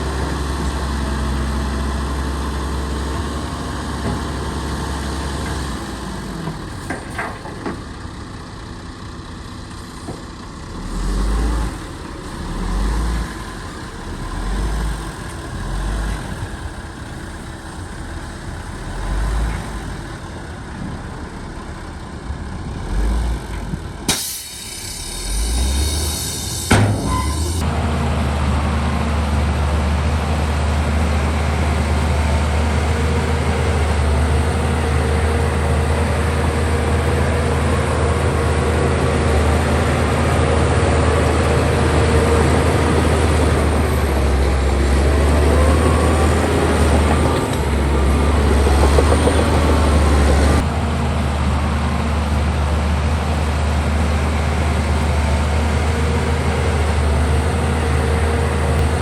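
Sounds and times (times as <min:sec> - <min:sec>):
heavy diesel engine running: 0:00.0 - 0:59.0
squealing and rattling: 0:25.9 - 0:27.7.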